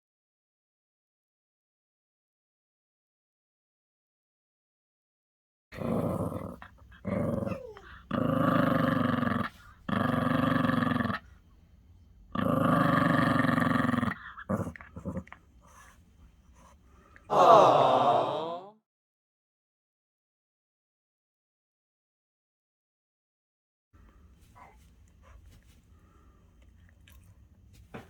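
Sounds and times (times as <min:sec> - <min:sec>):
dog growling: 0:05.8 - 0:11.3, 0:12.3 - 0:15.8.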